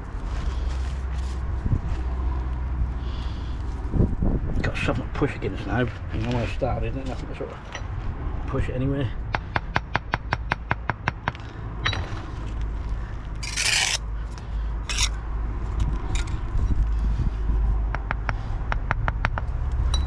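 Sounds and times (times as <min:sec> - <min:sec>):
trowel scraping: 0:13.4 - 0:16.4
steady low rumble: 0:14.0 - 0:18.7.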